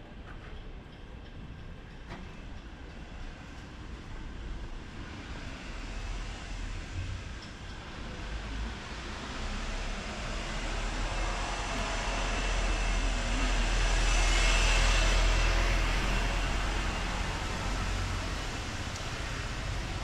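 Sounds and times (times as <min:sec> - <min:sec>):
vehicle passing by: 0:08.2 - 0:20.0.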